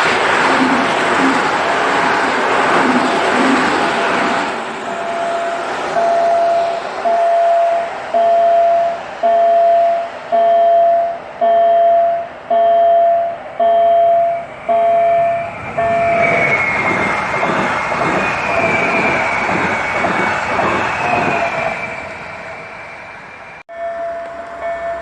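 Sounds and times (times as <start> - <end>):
train rumbling past: 0.0 - 25.0
level crossing warning tone: 2.8 - 22.1, 23.7 - 25.0
high steady whine: 3.8 - 21.7.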